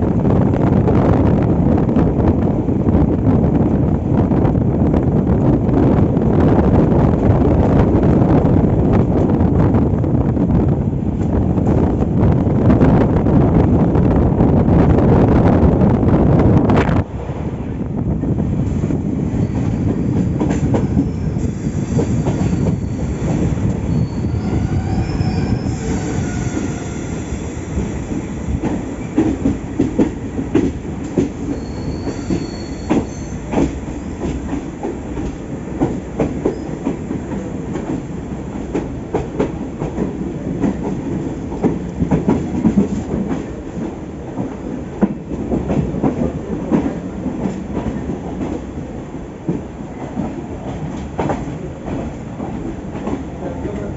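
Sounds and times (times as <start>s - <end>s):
train rumble: 0.0s - 53.9s
high wheel squeal: 20.8s - 27.5s, 31.5s - 33.6s.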